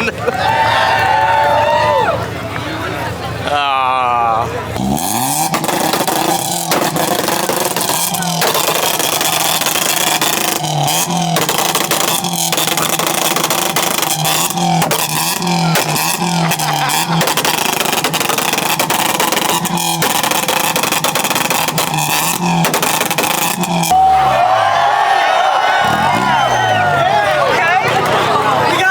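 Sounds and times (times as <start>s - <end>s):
car engine on rev limiter: 4.4s - 28.9s
exhaust pops and cracks: 4.8s - 23.9s.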